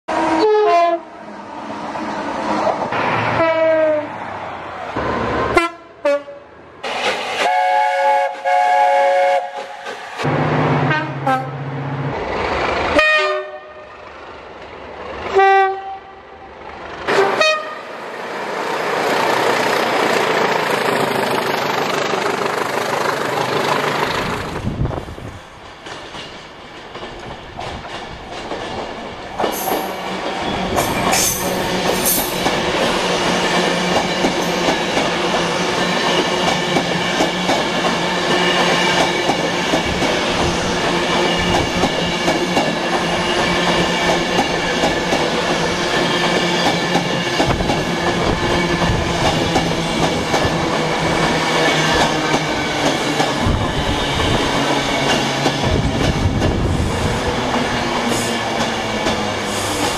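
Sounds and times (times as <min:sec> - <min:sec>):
locomotive horns: 0:00.1 - 0:01.1, 0:03.3 - 0:04.1, 0:05.5 - 0:06.5, 0:07.3 - 0:09.8, 0:10.7 - 0:11.7, 0:12.9 - 0:14.0, 0:15.3 - 0:16.4, 0:17.1 - 0:18.0
train rushing past: 0:00.1 - 0:59.9
locomotive running: 0:18.6 - 0:59.9.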